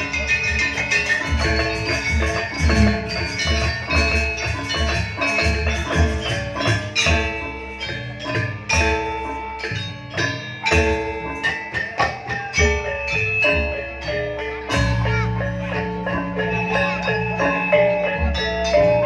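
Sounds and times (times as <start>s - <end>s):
drum strokes: 0.0s - 19.0s
metallophones ringing: 0.0s - 19.0s.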